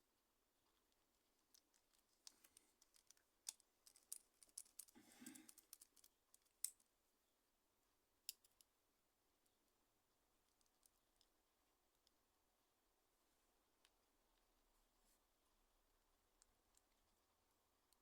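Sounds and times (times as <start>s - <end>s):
faint clicks of small parts: 0.6s - 6.9s, 8.2s - 8.7s, 10.4s - 12.2s, 16.3s - 18.0s.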